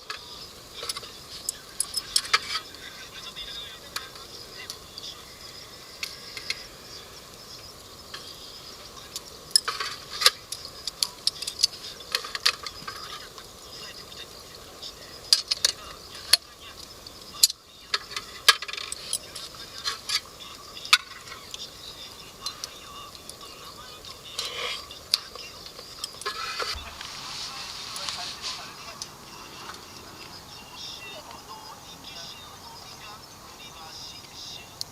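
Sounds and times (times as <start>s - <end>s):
utensils clinking on cookware: 0.8s - 2.6s.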